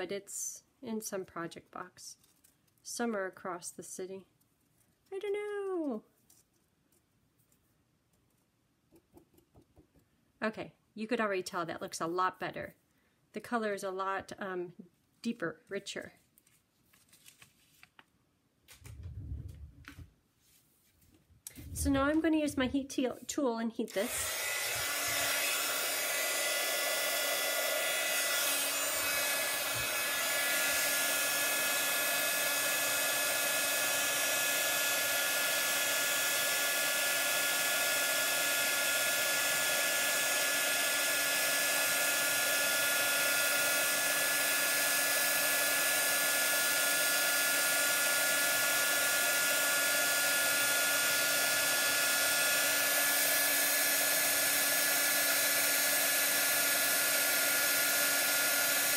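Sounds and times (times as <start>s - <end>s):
heat tool blowing and whining: 23.9s - 58.9s.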